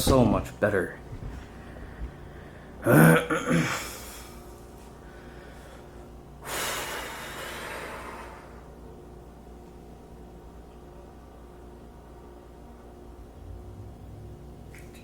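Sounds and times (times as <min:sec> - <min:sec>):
man breathy exhale: 0:05.1 - 0:08.6.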